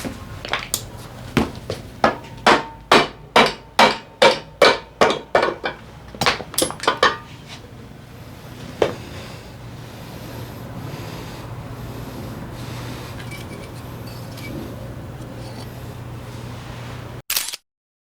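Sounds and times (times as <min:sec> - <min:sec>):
hammer striking metal: 0:00.8 - 0:07.6, 0:13.2 - 0:15.7.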